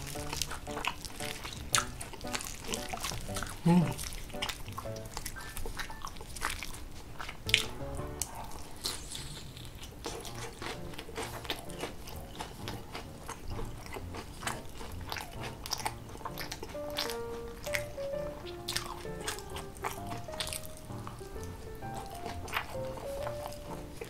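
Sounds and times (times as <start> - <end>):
chewing and crunching fried chicken: 0.0 - 24.0
faint background music: 0.0 - 24.0
wet sticky mouth sounds: 0.0 - 24.0.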